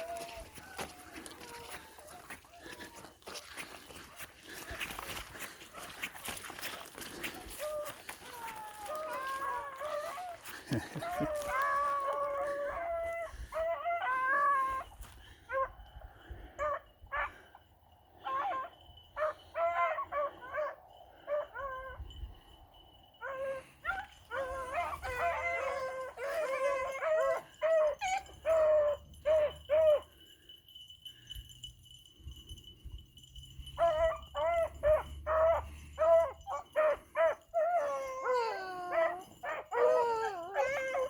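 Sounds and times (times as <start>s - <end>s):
beagles baying: 0.0s - 17.6s, 23.2s - 30.5s, 33.6s - 41.0s.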